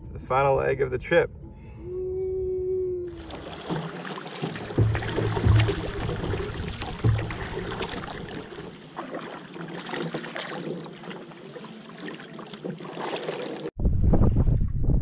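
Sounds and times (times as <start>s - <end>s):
wind: 0.0s - 15.0s
water lapping around kayak: 3.0s - 13.8s
small water splashes: 3.1s - 13.7s.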